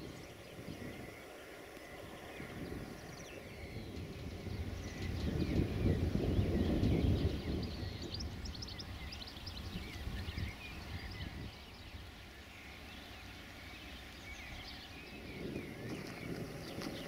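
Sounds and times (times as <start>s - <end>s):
birds chirping and singing: 0.0s - 17.0s
low rumble: 0.0s - 17.0s.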